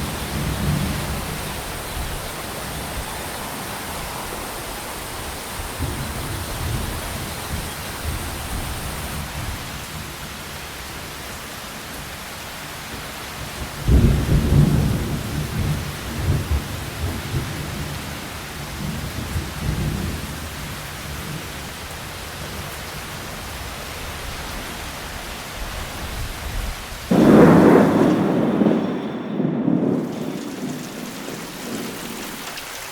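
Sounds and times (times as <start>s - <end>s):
loud thunderclap: 0.0s - 9.3s, 27.1s - 32.5s
rolling thunder: 0.0s - 9.6s, 13.8s - 20.2s, 27.1s - 32.5s
steady rain: 0.0s - 32.9s.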